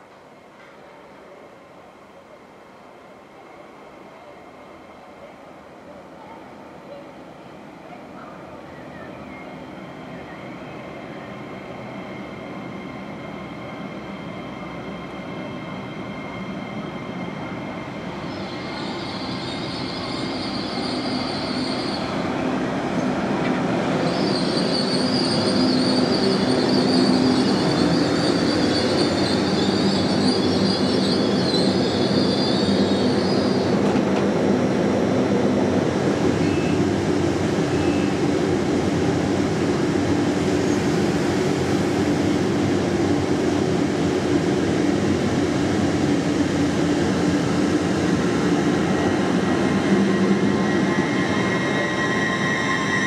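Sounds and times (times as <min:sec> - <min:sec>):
train rumble: 0:19.4 - 0:53.0
high-pitched wheel squeal: 0:24.0 - 0:33.7, 0:49.8 - 0:53.0.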